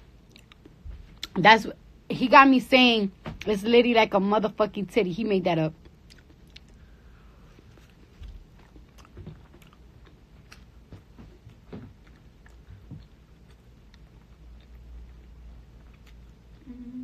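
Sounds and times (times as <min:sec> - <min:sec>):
person chewing: 0:00.2 - 0:01.3, 0:05.8 - 0:10.9, 0:11.5 - 0:16.9.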